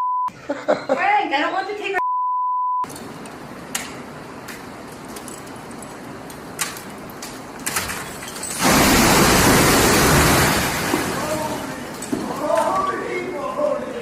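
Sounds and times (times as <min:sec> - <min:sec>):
censor bleep tone: 0:00.0 - 0:00.3, 0:02.0 - 0:02.9.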